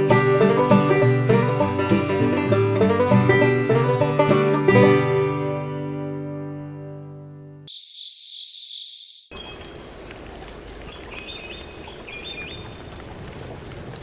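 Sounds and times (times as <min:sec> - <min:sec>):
banjo music: 0:00.0 - 0:07.7
high-pitched rapidly pulsing call: 0:07.7 - 0:09.3
short bird chirps: 0:07.7 - 0:09.7.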